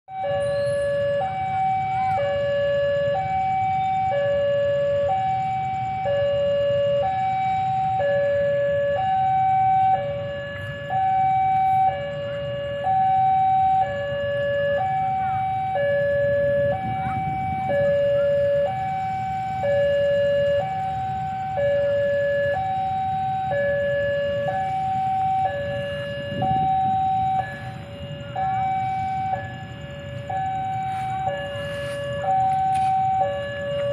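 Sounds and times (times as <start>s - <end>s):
level crossing two-tone alarm: 0.1s - 33.9s
steady low rumble: 14.4s - 33.9s.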